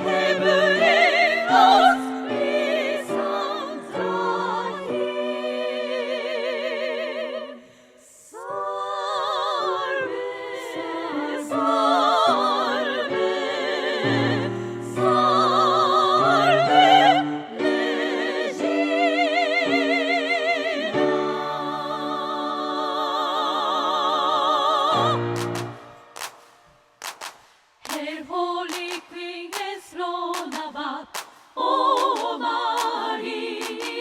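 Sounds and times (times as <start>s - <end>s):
women's choir singing: 0.0s - 26.4s, 27.9s - 34.0s
piano accompaniment: 24.9s - 26.9s.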